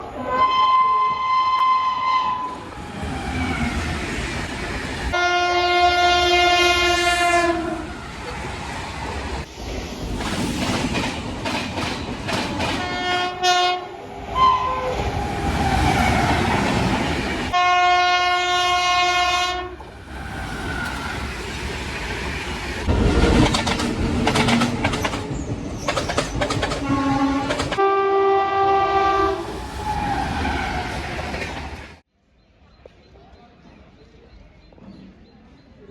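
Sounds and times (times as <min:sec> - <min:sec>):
passing train coaches: 0:00.0 - 0:32.1
train horn blasts: 0:05.1 - 0:07.9, 0:12.8 - 0:15.0, 0:17.5 - 0:19.8, 0:26.8 - 0:29.5
wheels clacking over rail joints: 0:10.2 - 0:13.1, 0:19.8 - 0:27.8.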